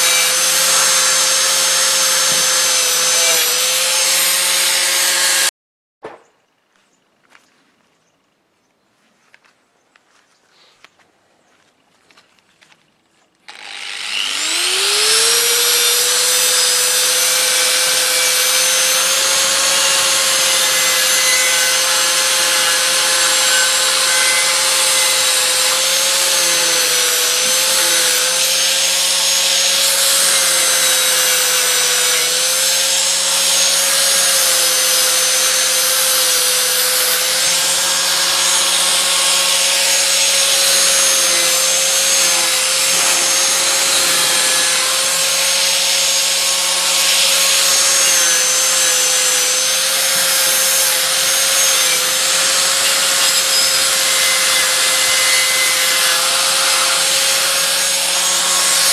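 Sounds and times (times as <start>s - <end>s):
grinder brush rubbing on metal: 40.6s - 45.4s.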